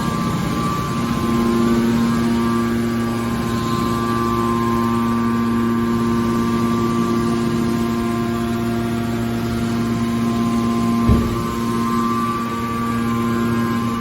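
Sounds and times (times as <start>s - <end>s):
hydraulic pump humming: 9.6s - 13.1s.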